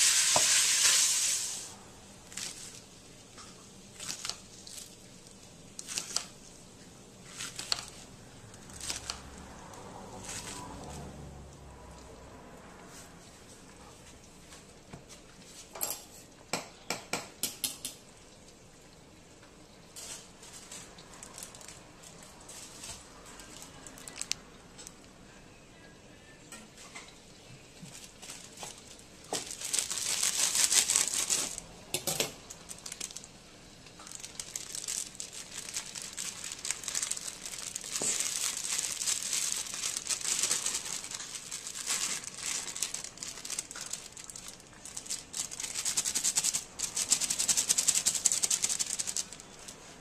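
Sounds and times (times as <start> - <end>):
meat sizzling in a wok: 0.0 - 1.8, 36.6 - 38.9.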